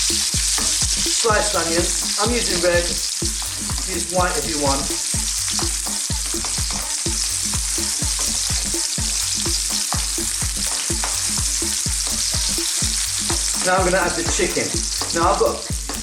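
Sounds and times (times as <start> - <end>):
vegetables sizzling in hot oil: 0.0 - 16.0
spatula stirring in wok: 4.9 - 16.0.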